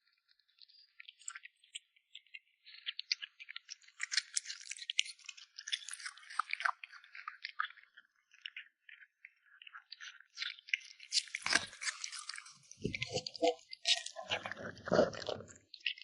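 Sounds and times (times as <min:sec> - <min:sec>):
kitten chewing meat: 0:03.9 - 0:16.0.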